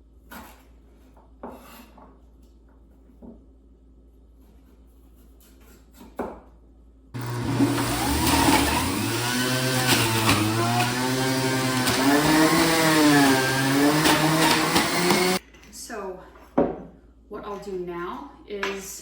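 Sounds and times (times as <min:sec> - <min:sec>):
electric juicer running: 0:07.2 - 0:15.4.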